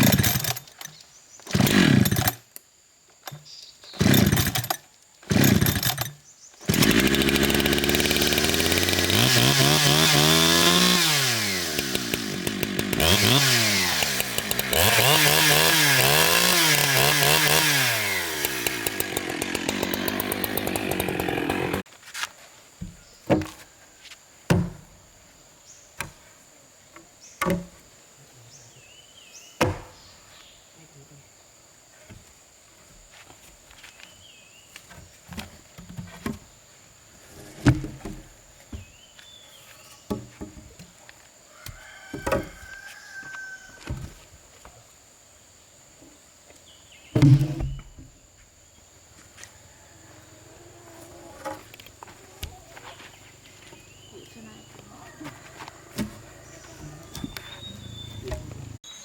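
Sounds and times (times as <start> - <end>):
chainsaw cutting wood: 0.0 - 2.5, 3.9 - 21.9, 47.2 - 48.0, 55.6 - 58.8.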